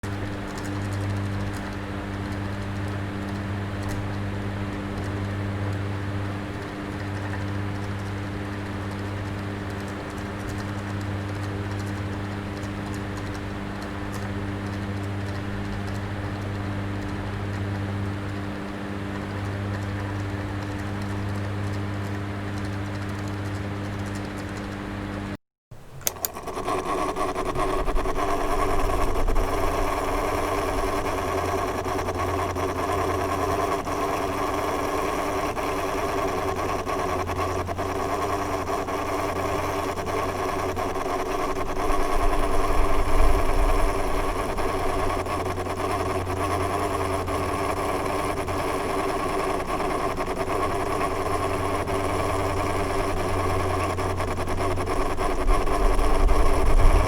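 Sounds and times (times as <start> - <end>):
electric fan motor hum: 0.0 - 57.0
rush of air from fan: 25.9 - 35.6, 38.6 - 57.0.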